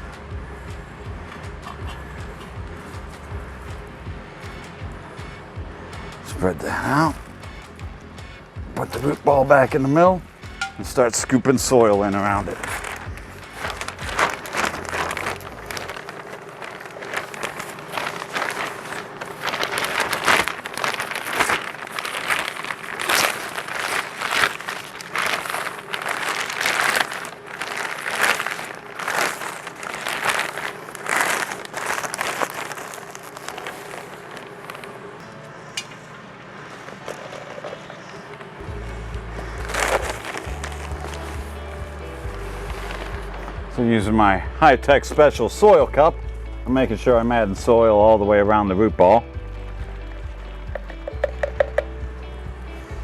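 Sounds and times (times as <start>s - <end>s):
dry soil pouring into pot: 12.1s - 34.9s, 39.4s - 43.3s.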